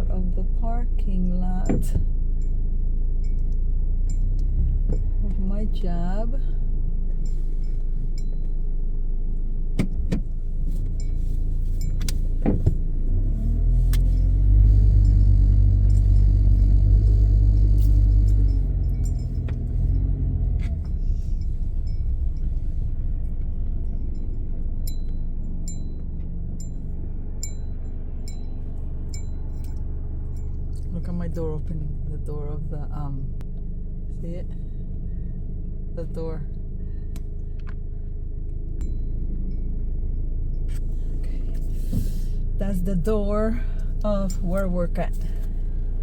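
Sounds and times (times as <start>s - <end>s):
car engine from inside cabin: 0.0s - 46.0s
regular ticking: 13.0s - 31.1s.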